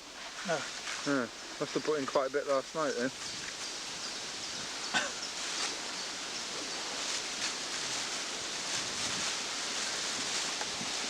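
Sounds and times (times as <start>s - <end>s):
steady outdoor rustling: 0.0s - 11.0s
short rustles and scrapes: 5.2s - 6.0s, 6.9s - 11.0s.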